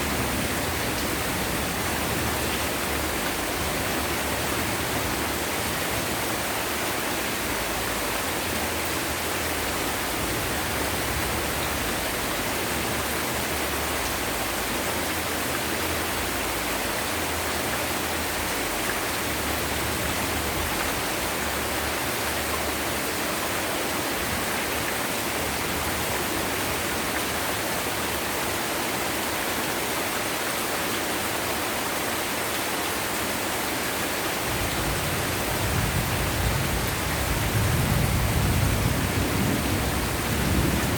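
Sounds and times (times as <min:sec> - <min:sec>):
heavy rain falling: 0:00.0 - 0:40.9
low rumble of thunder: 0:34.5 - 0:40.9.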